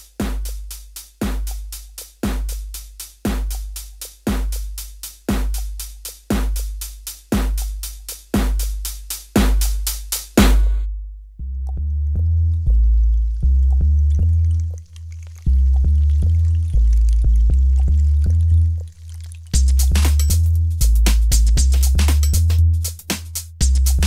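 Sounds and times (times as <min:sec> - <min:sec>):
drum beat with deep kick: 0:00.0 - 0:10.9, 0:19.6 - 0:24.0
low bass line: 0:10.4 - 0:18.9, 0:19.6 - 0:24.0.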